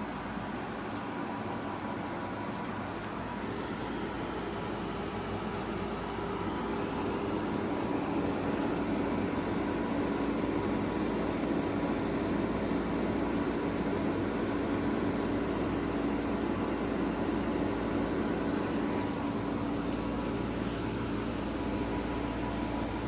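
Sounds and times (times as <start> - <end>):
air conditioner fan rushing air: 0.0 - 23.0.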